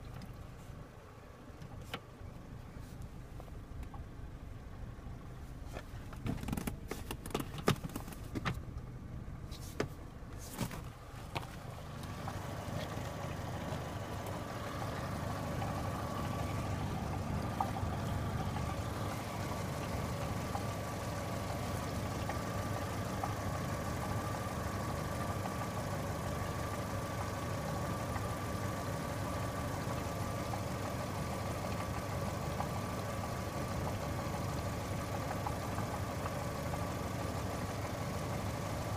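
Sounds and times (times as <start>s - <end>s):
car engine idling: 0.0s - 38.9s
steady whine: 9.4s - 33.9s.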